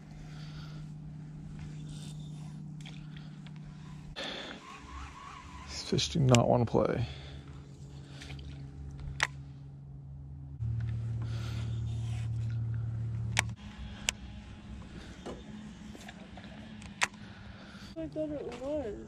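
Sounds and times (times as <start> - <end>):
electric motor humming: 0.0 - 19.0
sharp clicks: 6.2 - 6.5, 13.3 - 14.2.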